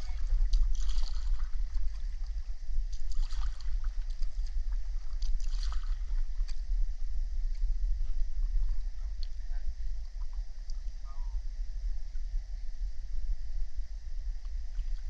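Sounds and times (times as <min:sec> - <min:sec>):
water splashing and trickling: 0:00.0 - 0:06.7
low rumble: 0:00.0 - 0:15.0.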